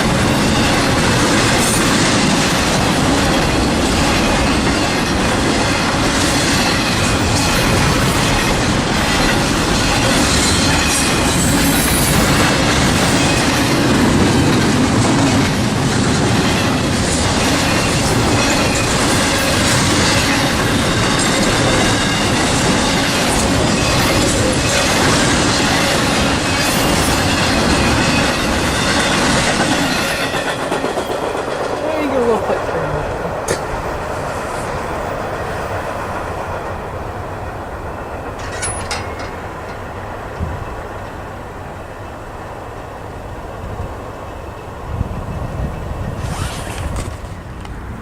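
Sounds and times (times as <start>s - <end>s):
freight train wheels clattering: 0.0s - 42.9s
wheel squeal: 46.2s - 47.4s.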